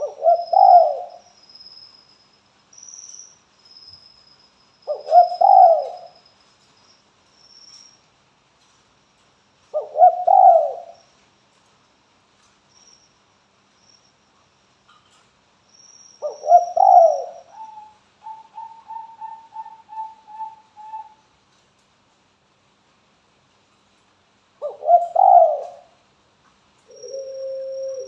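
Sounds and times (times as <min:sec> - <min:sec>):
dove cooing: 0:00.0 - 0:01.2, 0:04.9 - 0:06.2, 0:09.7 - 0:11.0, 0:16.2 - 0:21.2, 0:24.6 - 0:26.0, 0:26.9 - 0:28.0.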